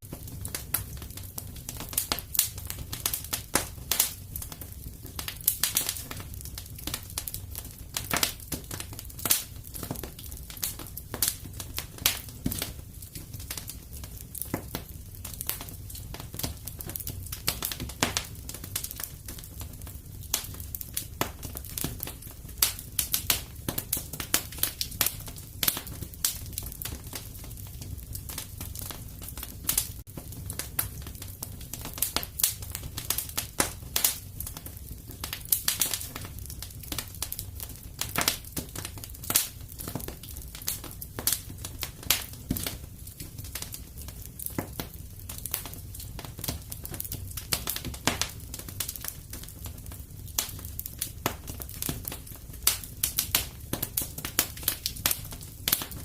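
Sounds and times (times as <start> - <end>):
fire crackling and popping: 0.0 - 56.0.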